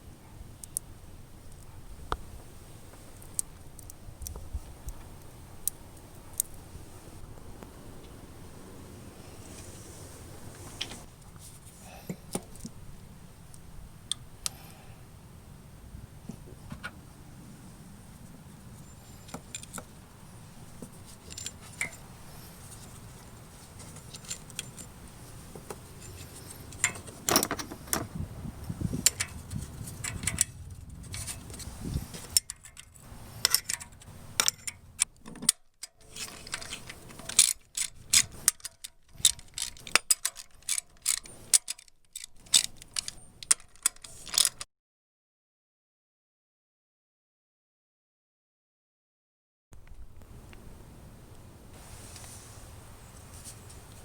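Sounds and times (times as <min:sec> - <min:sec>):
metal clinks and rattles: 0:20.9 - 0:28.2, 0:29.0 - 0:44.6.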